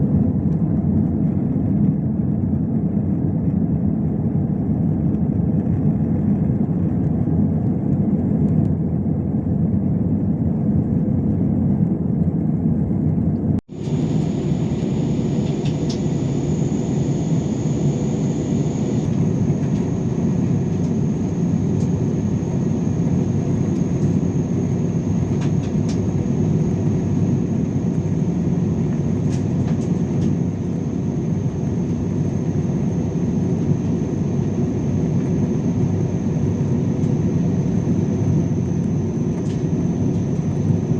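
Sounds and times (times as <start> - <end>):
airplane cabin engine drone: 0.0 - 40.9
faint high whine: 13.7 - 40.9.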